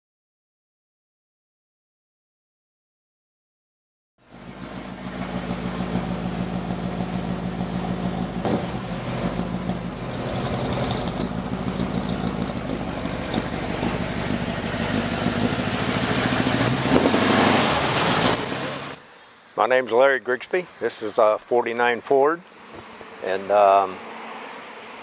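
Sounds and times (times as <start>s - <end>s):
car engine idling: 4.3s - 19.0s.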